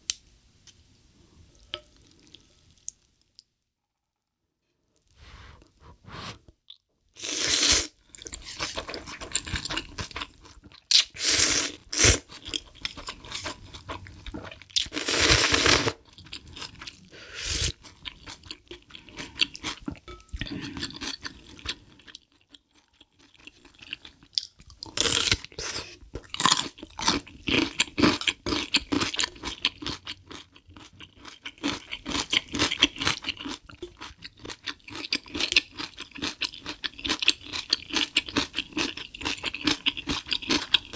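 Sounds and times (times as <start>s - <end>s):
food crunching and chewing: 6.7s - 40.9s.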